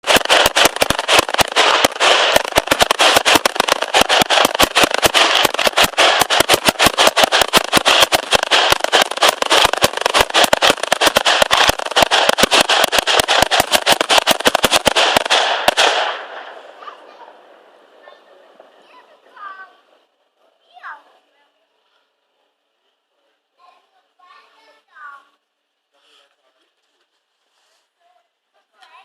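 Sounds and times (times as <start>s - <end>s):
fireworks bangs: 0.0s - 18.8s
crackling hiss: 0.0s - 18.9s.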